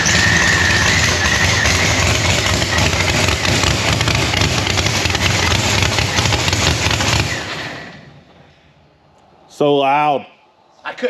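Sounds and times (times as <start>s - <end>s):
loud engine idling: 0.0s - 8.5s.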